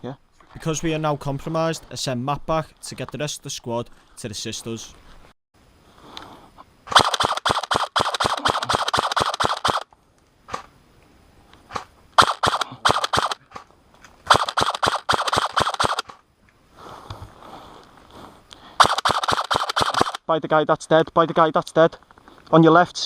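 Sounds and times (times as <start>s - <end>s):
airsoft guns firing: 6.9s - 9.9s, 12.2s - 13.6s, 14.3s - 16.2s, 18.8s - 20.2s.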